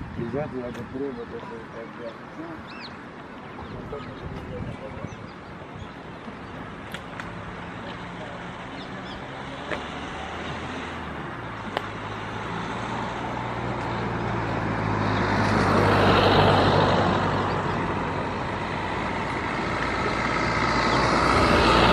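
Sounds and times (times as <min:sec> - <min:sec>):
motor vehicles humming: 0:00.0 - 0:21.9.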